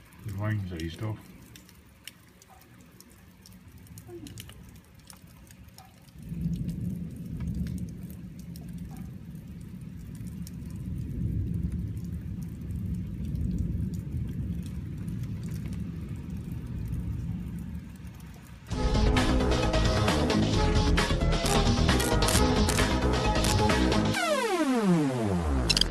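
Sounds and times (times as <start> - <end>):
drips ticking: 0.0 - 20.2
light rain: 0.0 - 25.9.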